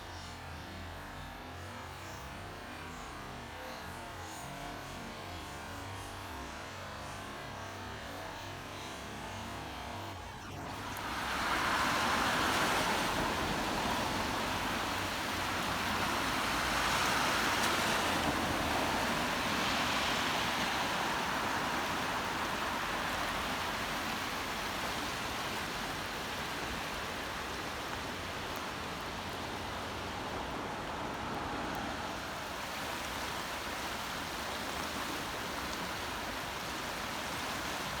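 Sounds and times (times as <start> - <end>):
running water: 4.6 - 38.0
heavy rain: 10.8 - 38.0.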